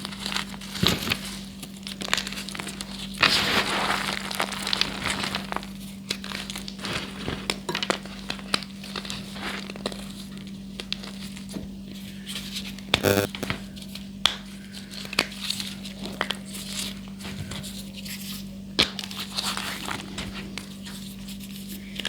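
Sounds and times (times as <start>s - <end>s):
low electrical hum: 13.0s - 13.5s.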